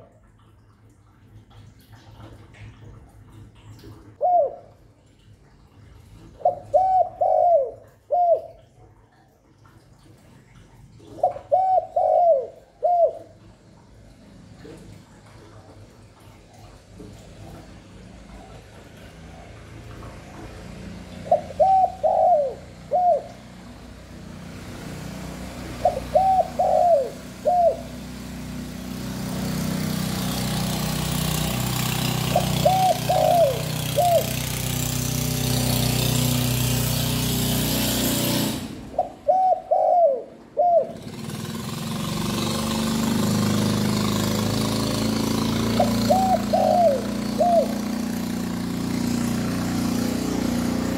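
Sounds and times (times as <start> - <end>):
engine-like hum and hiss: 0.0 - 50.9
dove cooing: 4.2 - 4.8, 6.4 - 8.7, 11.0 - 13.4, 21.2 - 23.8, 25.6 - 28.0, 32.2 - 34.5, 38.9 - 41.2, 45.7 - 47.9.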